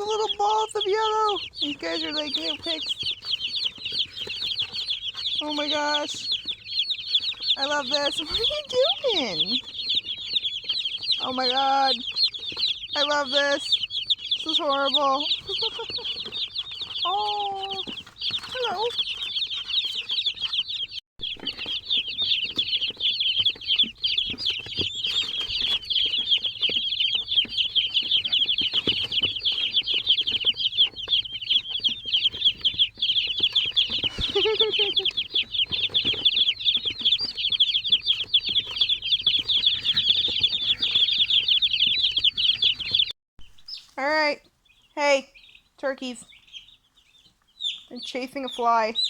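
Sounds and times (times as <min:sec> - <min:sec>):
chicks peeping: 0:00.0 - 0:49.0.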